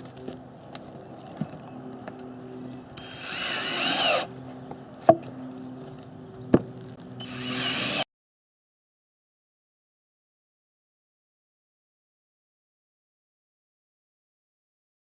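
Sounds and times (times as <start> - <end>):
steady low hum: 0.0 - 8.0
power drill whining: 2.6 - 4.6, 7.0 - 8.0.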